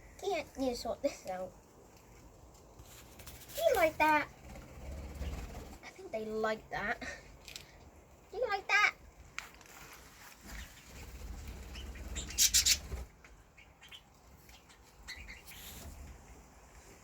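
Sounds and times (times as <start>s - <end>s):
bird wings flapping: 2.8s - 5.8s, 10.3s - 13.2s
faint bird chirps: 10.5s - 15.9s.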